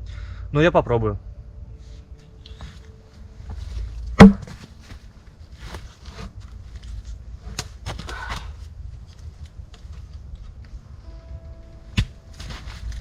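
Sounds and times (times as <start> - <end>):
sticks rustling: 1.9 - 10.6.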